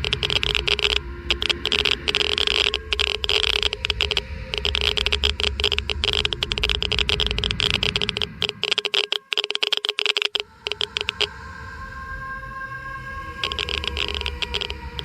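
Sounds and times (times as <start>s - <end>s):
low rumble: 0.0s - 8.6s
geiger counter clicking: 0.0s - 11.3s, 13.4s - 15.0s.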